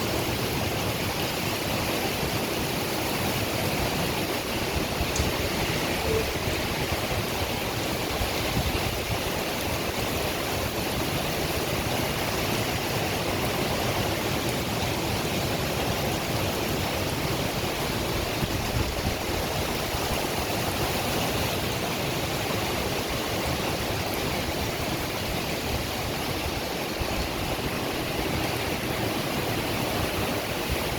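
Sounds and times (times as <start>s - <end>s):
heavy rain pouring: 0.0s - 30.9s.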